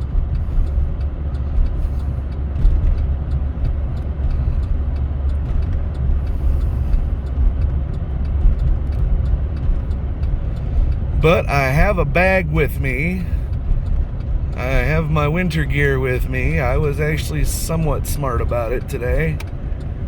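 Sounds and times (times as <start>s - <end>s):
faint irregular ticks: 0.0s - 11.2s
engine and tyre rumble: 0.0s - 20.0s.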